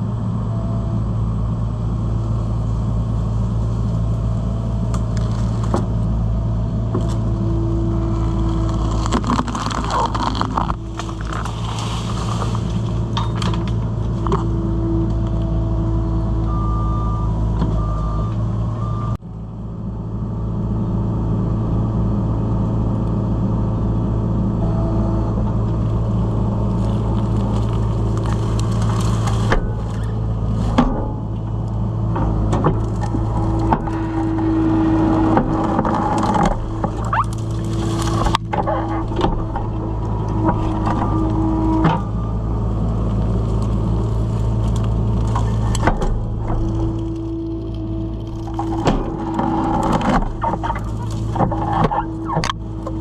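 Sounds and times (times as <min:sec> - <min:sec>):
hydraulics whining: 0:00.0 - 0:53.0
skid steer engine running: 0:00.0 - 0:53.0
wood cracking and snapping: 0:04.8 - 0:06.1, 0:06.9 - 0:15.4, 0:25.9 - 0:31.0, 0:32.6 - 0:42.0, 0:42.6 - 0:53.0.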